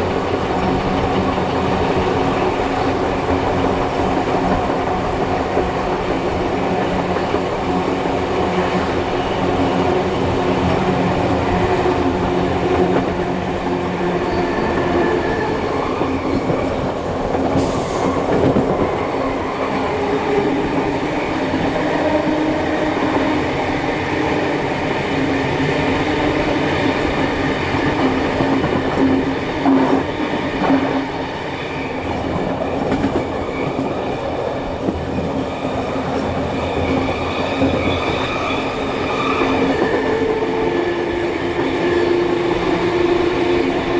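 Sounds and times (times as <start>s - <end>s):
train wheels rumbling on track: 0.0s - 43.9s
sharp hiss or clank: 17.6s - 20.1s.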